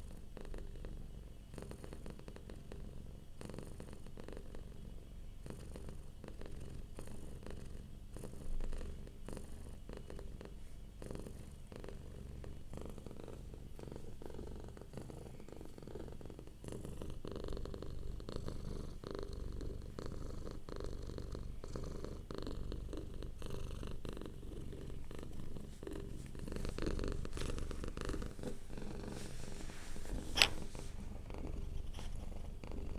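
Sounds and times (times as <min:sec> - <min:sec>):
cat purring: 0:00.0 - 0:32.9
sharp click: 0:30.3 - 0:30.7.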